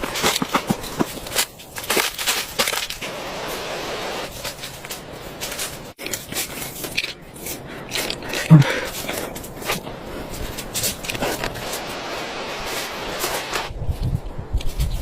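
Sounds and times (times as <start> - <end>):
crunching and crackling: 0.0 - 3.2, 4.2 - 12.0
rustling hiss: 0.0 - 15.0.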